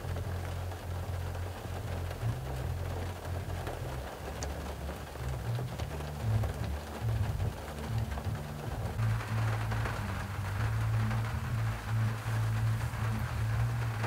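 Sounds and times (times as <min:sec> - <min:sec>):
rain pattering on a car: 0:00.0 - 0:14.0
low hum: 0:05.3 - 0:14.0.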